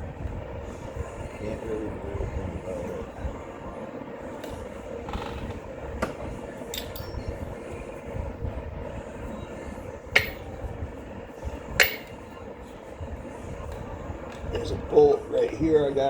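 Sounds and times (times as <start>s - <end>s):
steady background hum: 0.0s - 16.0s
metal tools clinking: 6.7s - 7.3s.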